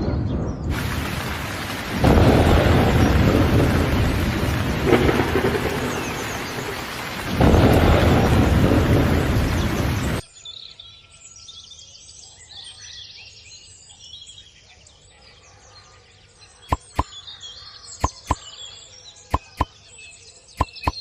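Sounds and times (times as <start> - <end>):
thunder rumbling: 0.0 - 10.2
heavy rain: 0.7 - 10.2.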